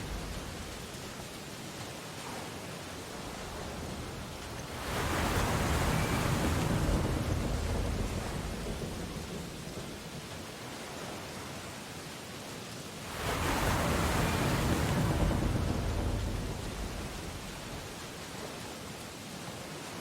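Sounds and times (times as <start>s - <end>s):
steady surf hiss: 0.0s - 20.0s
wave breaking on beach: 2.1s - 10.1s, 13.0s - 18.6s.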